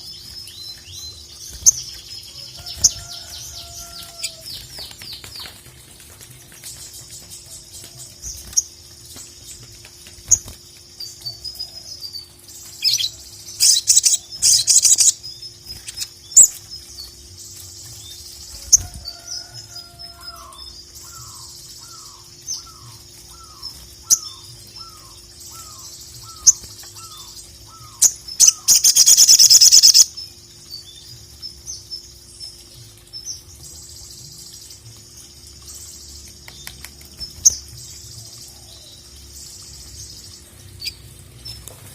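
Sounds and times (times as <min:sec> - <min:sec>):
bird chirping trills: 0:06.4 - 0:41.8
harsh rasping bird calls: 0:20.1 - 0:30.1.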